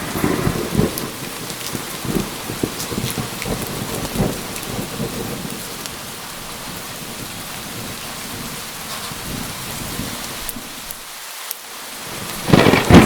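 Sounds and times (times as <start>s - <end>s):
thunder rumbling: 0.0s - 10.9s, 12.0s - 13.0s
rain pouring: 0.0s - 13.0s.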